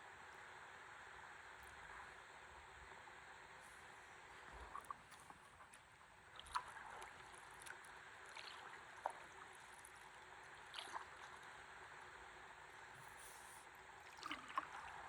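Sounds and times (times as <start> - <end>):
water lapping and trickling: 3.6 - 15.0
small water splashes: 4.8 - 11.6, 14.0 - 15.0.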